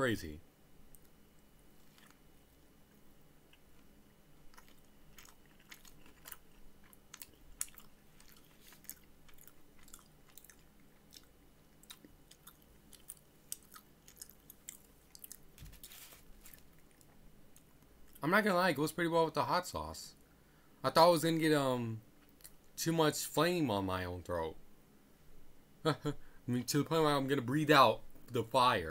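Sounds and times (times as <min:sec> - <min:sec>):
close chewing: 0:01.8 - 0:02.2, 0:03.5 - 0:18.2.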